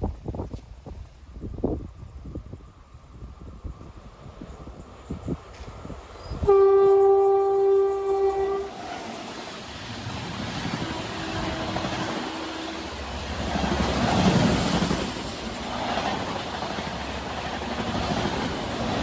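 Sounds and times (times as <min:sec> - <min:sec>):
train rumble and rail noise: 0:00.0 - 0:19.0
train horn blast: 0:06.4 - 0:09.2, 0:10.6 - 0:13.2.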